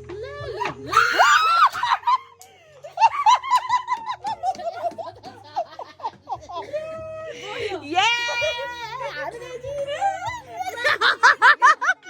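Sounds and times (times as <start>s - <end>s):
person shrieking: 0.4s - 1.8s
group of people laughing: 0.6s - 12.0s.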